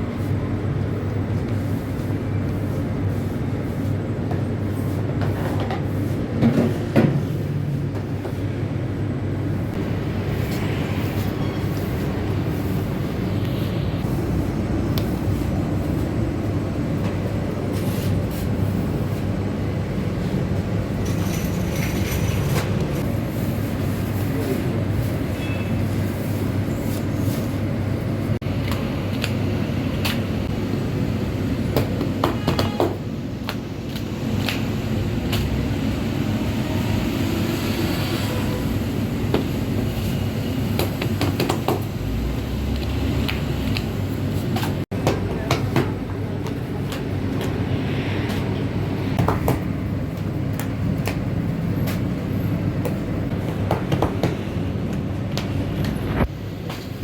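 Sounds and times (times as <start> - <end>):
machinery rumbling: 9.6 - 25.4.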